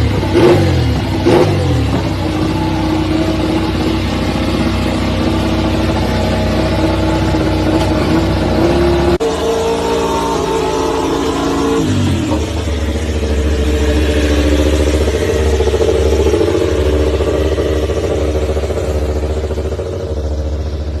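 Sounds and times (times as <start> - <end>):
racing motorcycle engine: 0.0 - 21.0.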